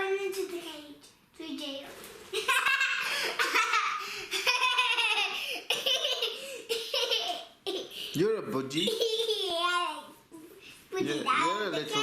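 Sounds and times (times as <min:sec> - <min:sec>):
child laughing: 0:02.3 - 0:08.0, 0:08.8 - 0:10.0.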